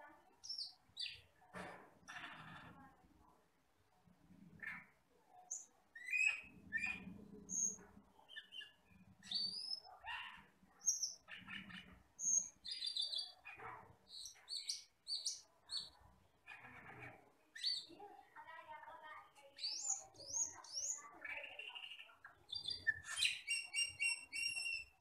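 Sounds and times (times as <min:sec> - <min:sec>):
bird chirps and whistles: 0:22.6 - 0:25.0.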